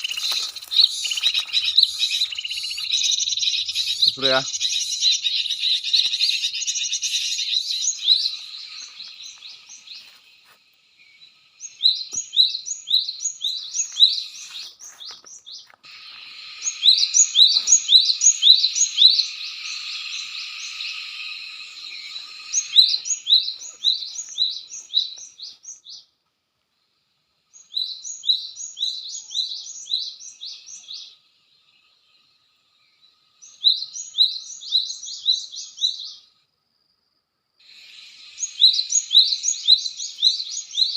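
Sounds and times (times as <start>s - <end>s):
bird sharp rising chirps: 0.0s - 10.1s, 11.0s - 26.0s, 37.6s - 40.9s.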